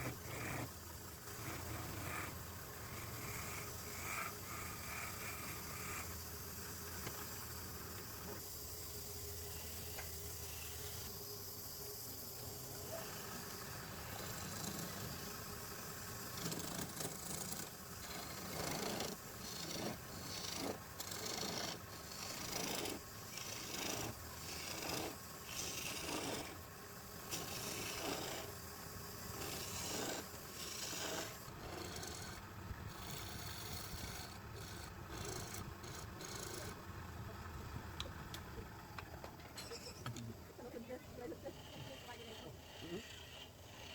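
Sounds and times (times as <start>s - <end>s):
tool rasping against wood: 13.9s - 15.5s, 16.3s - 26.6s, 27.2s - 28.6s, 29.3s - 36.8s, 41.4s - 43.9s.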